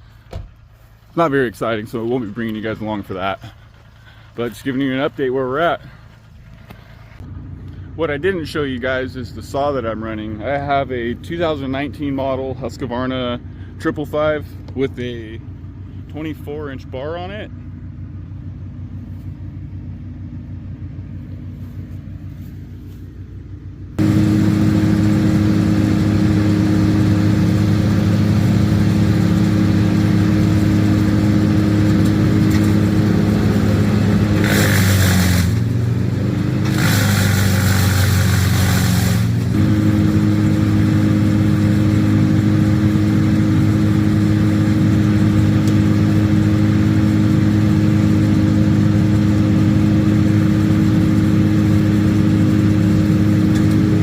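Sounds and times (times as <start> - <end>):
engine humming quietly: 0.0 - 54.0
loud engine at high speed: 5.1 - 54.0
rasping shredding noise: 30.9 - 40.2.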